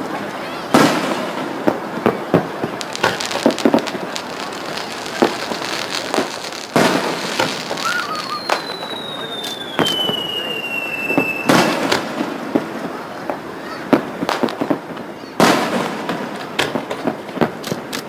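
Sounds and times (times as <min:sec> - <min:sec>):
fireworks bangs and crackles: 0:00.0 - 0:18.0
high falling whistle: 0:07.7 - 0:11.6.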